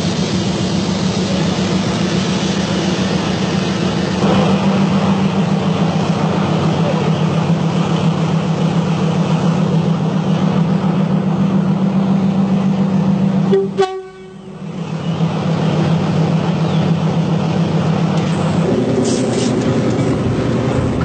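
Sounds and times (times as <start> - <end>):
diesel train droning: 0.0 - 21.0
train horn: 13.5 - 14.5.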